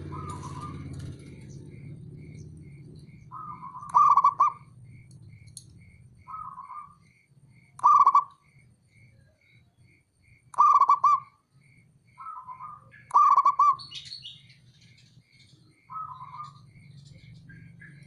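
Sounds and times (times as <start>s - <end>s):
dove cooing in trilling phrases: 0.0s - 5.0s, 6.2s - 7.1s, 7.7s - 8.5s, 10.5s - 11.4s, 12.2s - 14.1s, 15.8s - 18.0s.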